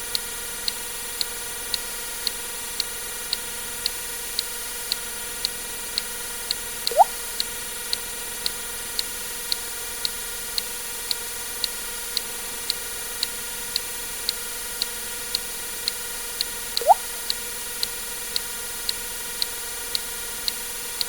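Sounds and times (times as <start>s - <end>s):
water drip sound effect: 6.9s - 7.2s, 16.8s - 17.1s
clock ticking: 16.8s - 17.0s.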